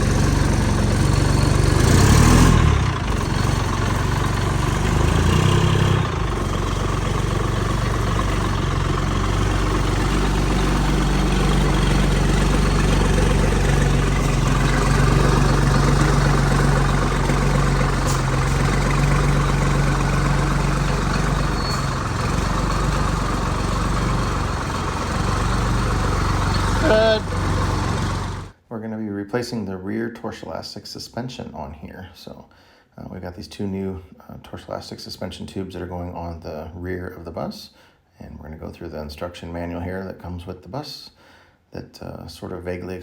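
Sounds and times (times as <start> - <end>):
bus engine idling: 0.0 - 28.6.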